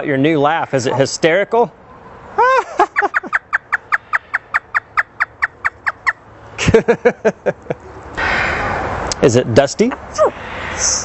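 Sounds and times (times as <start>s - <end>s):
parrot imitating laughter: 2.4s - 6.1s.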